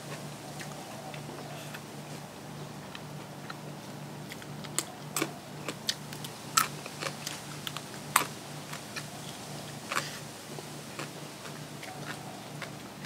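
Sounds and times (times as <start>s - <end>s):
person biting and chewing: 4.3s - 9.1s, 9.9s - 10.2s.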